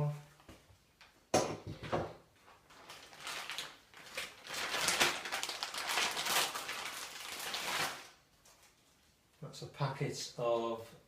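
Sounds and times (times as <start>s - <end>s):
plastic packaging rustling: 2.3s - 9.2s.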